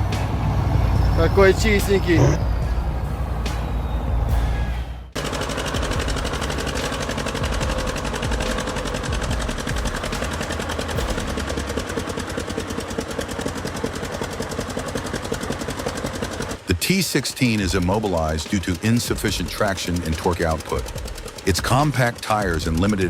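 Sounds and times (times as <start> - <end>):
tractor diesel engine running hard: 0.0 - 16.8, 17.4 - 23.0.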